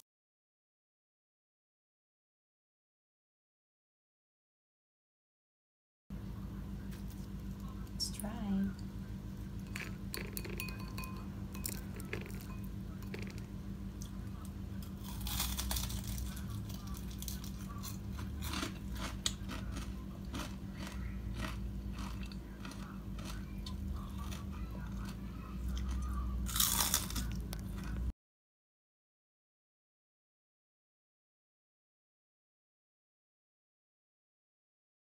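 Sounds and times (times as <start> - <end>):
steady low hum: 6.1 - 28.1
crispy food crunching: 9.4 - 28.1.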